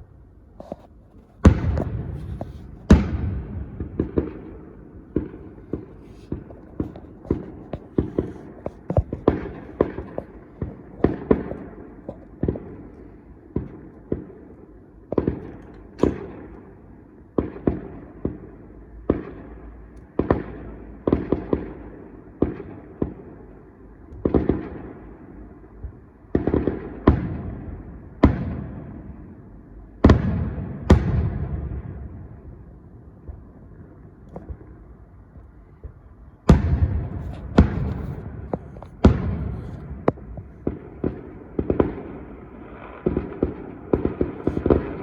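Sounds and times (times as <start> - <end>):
fireworks bangs: 0.6 - 13.0, 15.1 - 16.5, 35.7 - 45.0.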